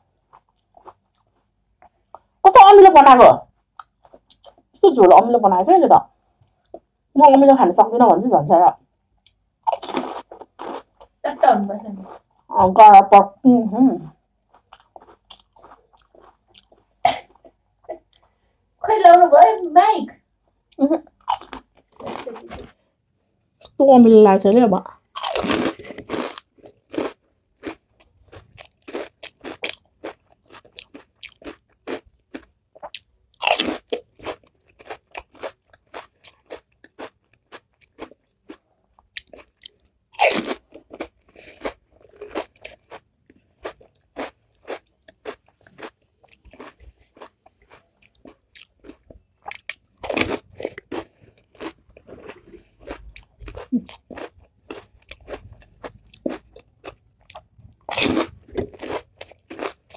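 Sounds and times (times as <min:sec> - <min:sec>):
chewing with crackles: 0:00.2 - 0:02.4, 0:03.6 - 0:04.8, 0:09.2 - 0:11.2, 0:14.4 - 0:18.5, 0:24.9 - 0:59.9.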